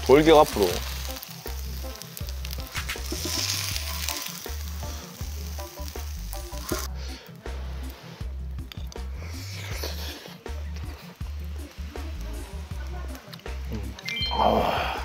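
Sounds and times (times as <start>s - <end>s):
fried rice sizzling on griddle: 0.0s - 8.4s, 9.1s - 15.0s
background music with bass beat: 0.0s - 15.0s.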